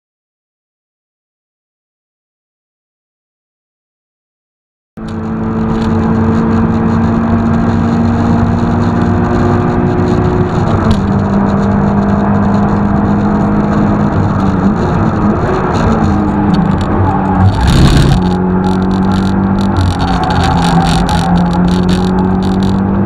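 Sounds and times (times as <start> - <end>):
sports car engine running hard: 5.0 - 23.0
wind and road noise: 5.0 - 23.0.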